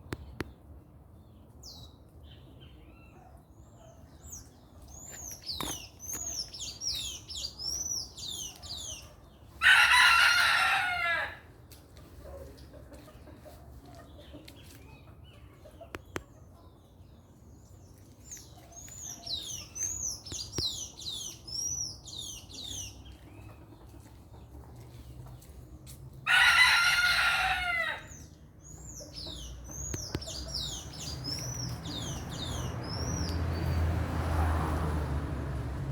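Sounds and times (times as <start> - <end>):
small birds singing: 0.0 - 10.7, 11.5 - 34.0
rooster crowing: 9.6 - 11.5, 26.2 - 28.1.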